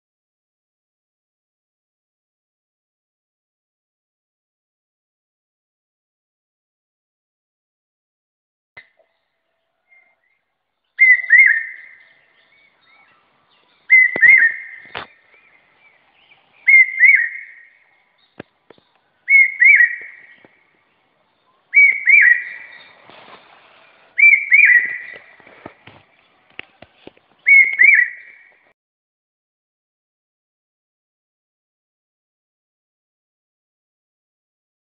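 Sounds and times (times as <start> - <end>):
bird two-note whistled call: 11.0 - 13.0, 13.9 - 14.9, 16.7 - 17.7, 19.3 - 20.4, 21.8 - 22.8, 24.2 - 25.2, 27.5 - 28.5.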